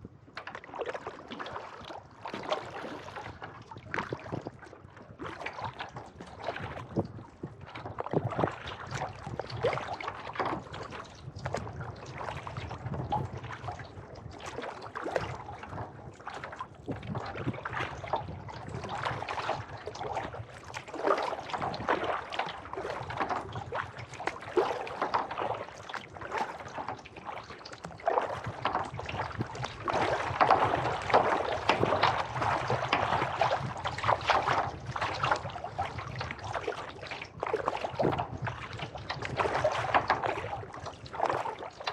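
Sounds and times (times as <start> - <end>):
paddle splashing in water: 0.3 - 41.9.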